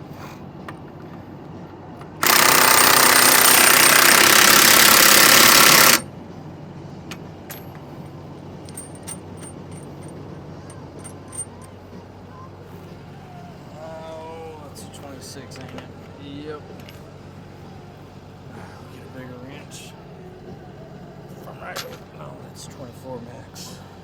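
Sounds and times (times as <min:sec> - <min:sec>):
impact wrench hammering on nut: 0:02.2 - 0:06.0.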